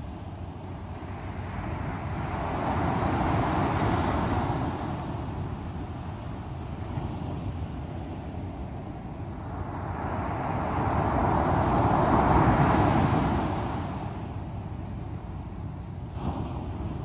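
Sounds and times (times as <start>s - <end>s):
low rumble of surf: 0.0s - 17.0s.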